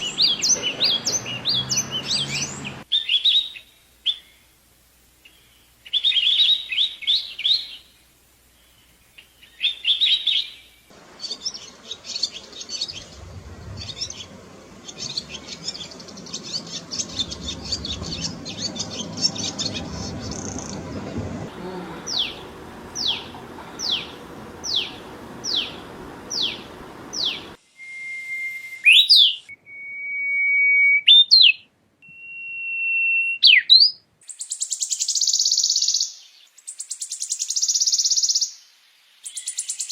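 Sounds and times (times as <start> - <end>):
songbirds chirping and singing: 0.0 - 4.4, 8.6 - 27.6.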